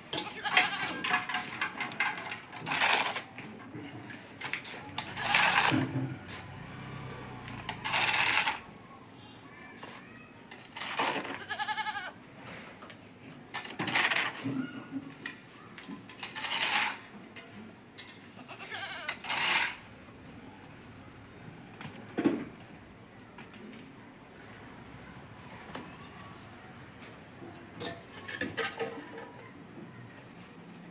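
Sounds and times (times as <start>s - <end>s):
goat bleating: 0.2s - 1.0s, 11.3s - 12.2s, 18.3s - 19.3s.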